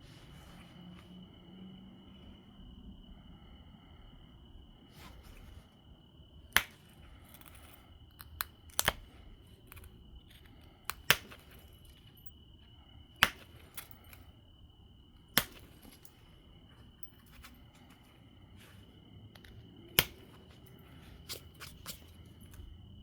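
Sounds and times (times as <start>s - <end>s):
stone knapping clicks: 6.5s - 12.3s, 13.2s - 14.3s, 15.3s - 16.1s, 19.4s - 20.6s.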